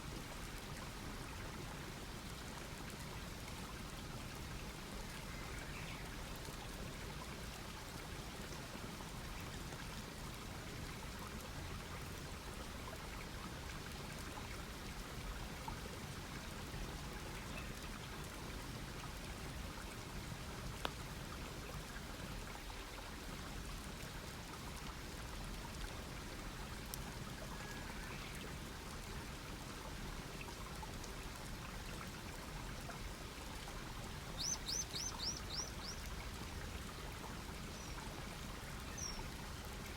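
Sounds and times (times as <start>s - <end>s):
bird chirping: 34.4s - 36.0s.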